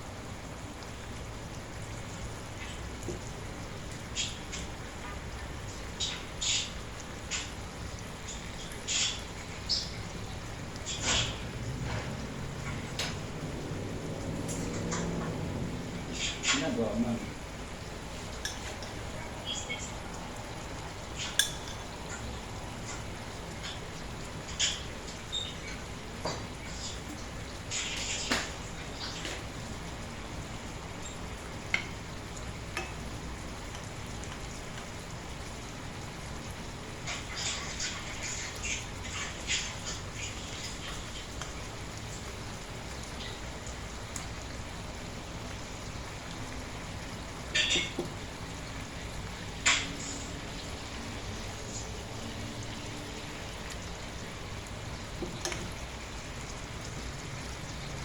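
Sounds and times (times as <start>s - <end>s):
chicken sizzling in a pan: 16.2s - 58.0s.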